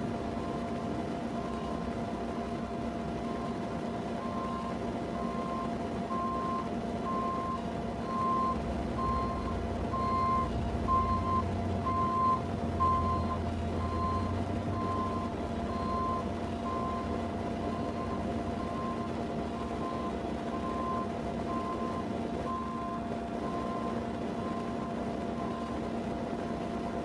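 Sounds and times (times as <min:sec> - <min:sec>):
engine low rumble: 0:00.0 - 0:27.0
reversing alarm beeping: 0:04.2 - 0:25.8.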